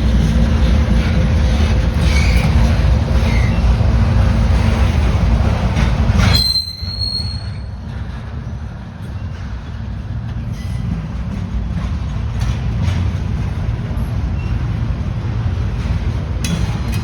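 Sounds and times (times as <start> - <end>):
train wheels rumbling on rail: 0.0 - 17.0
high squeal: 6.3 - 7.8.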